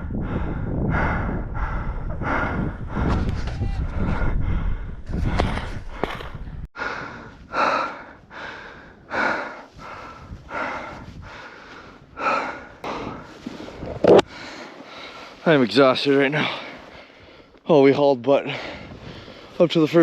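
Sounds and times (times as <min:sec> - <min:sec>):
low rumble: 0:00.0 - 0:07.1
person breathing hard: 0:00.0 - 0:15.4, 0:16.4 - 0:17.6, 0:18.4 - 0:19.6.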